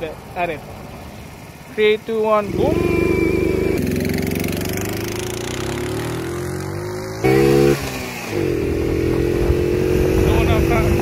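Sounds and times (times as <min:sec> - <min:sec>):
small motorcycle engine accelerating: 0:02.4 - 0:11.0.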